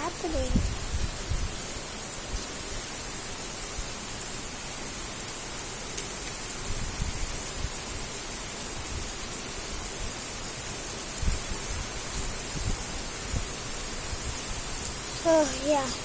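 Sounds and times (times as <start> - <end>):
wind buffeting microphone: 0.0 - 1.6, 11.2 - 15.2
heavy rain pouring: 0.0 - 16.0.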